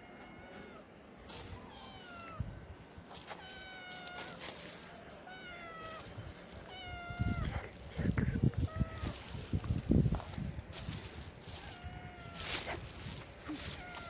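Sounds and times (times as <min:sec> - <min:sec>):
kitten meowing: 0:01.6 - 0:02.4, 0:03.3 - 0:07.5, 0:11.5 - 0:14.0.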